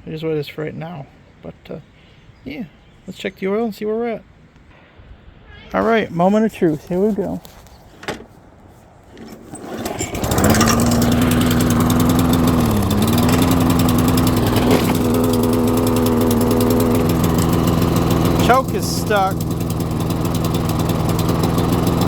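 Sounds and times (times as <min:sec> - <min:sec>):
lawnmower engine running: 0:09.0 - 0:22.0.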